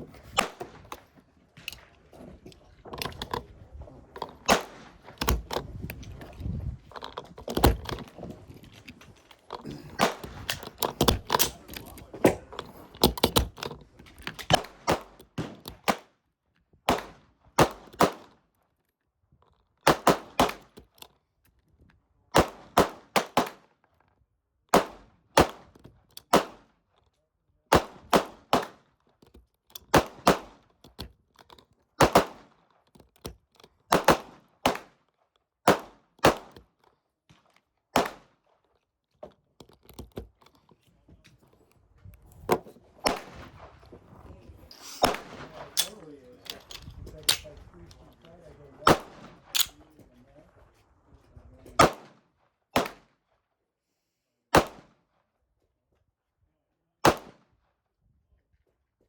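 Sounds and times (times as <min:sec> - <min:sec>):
gunshots: 0:00.2 - 0:01.8, 0:04.3 - 0:05.6, 0:09.6 - 0:12.4, 0:16.9 - 0:18.3, 0:19.9 - 0:20.7, 0:22.4 - 0:23.6, 0:27.7 - 0:28.8, 0:29.9 - 0:30.6, 0:32.0 - 0:32.5, 0:33.9 - 0:34.9, 0:35.7 - 0:36.6, 0:38.0 - 0:38.3, 0:43.0 - 0:43.9, 0:44.7 - 0:47.7, 0:48.8 - 0:49.8, 0:51.8 - 0:52.2, 0:52.8 - 0:53.1, 0:54.6 - 0:54.9, 0:57.1 - 0:57.4.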